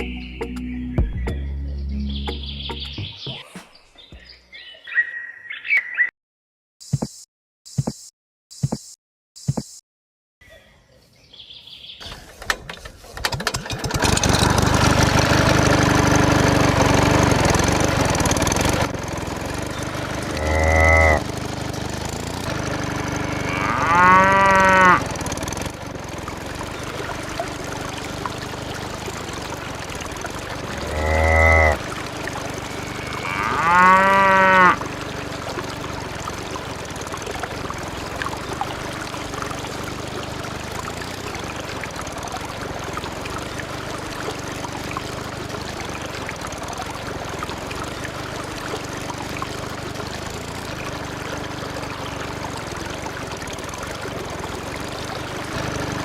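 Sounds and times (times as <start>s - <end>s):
cow mooing: 20.4s - 21.2s, 23.2s - 25.1s, 30.8s - 31.9s, 32.5s - 34.9s.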